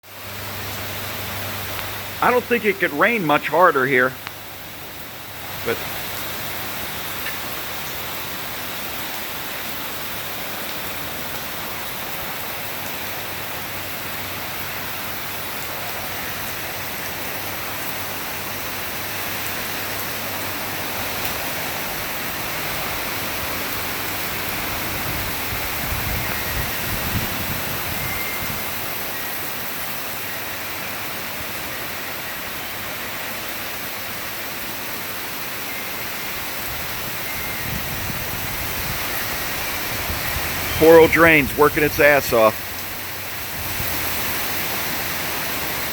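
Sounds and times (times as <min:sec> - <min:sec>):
heavy rain pouring: 0:00.0 - 0:45.9
running water: 0:00.1 - 0:45.9.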